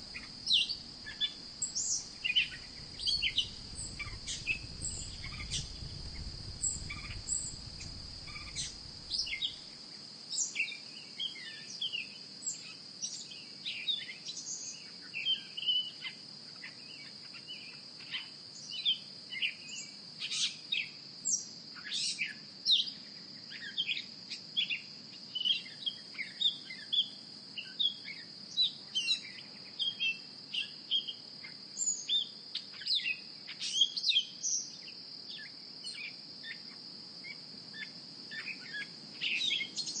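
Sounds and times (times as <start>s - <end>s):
high insect drone: 0.0s - 40.0s
bird chirps: 0.1s - 9.6s
low rumble: 2.5s - 9.5s.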